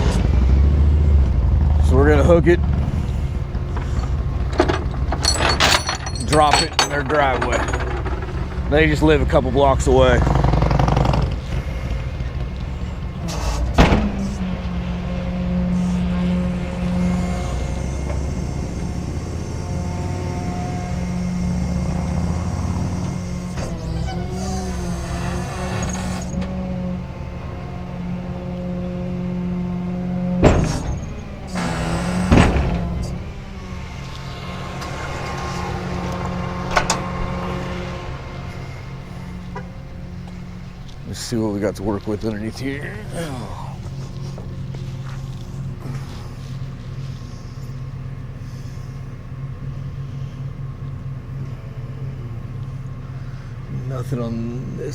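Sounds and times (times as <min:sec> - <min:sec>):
truck engine idling: 0:00.0 - 0:54.9
sharp clunks: 0:02.6 - 0:11.6, 0:12.2 - 0:14.7, 0:30.4 - 0:33.3.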